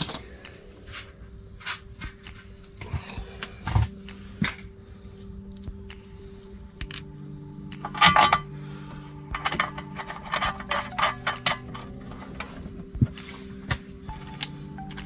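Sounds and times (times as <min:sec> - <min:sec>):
metal tools clinking and rattling: 0:07.8 - 0:08.5, 0:09.3 - 0:15.0.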